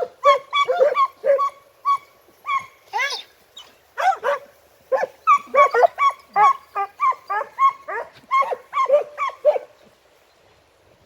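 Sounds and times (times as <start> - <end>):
hounds yelping: 0.0 - 9.7.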